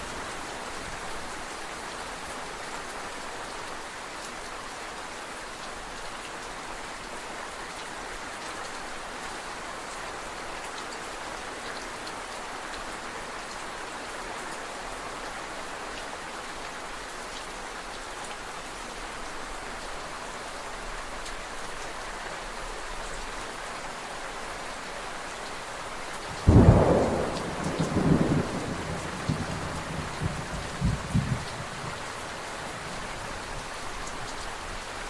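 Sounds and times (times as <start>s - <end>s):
rain falling: 0.0s - 35.0s
loud thunder clap: 26.4s - 31.9s.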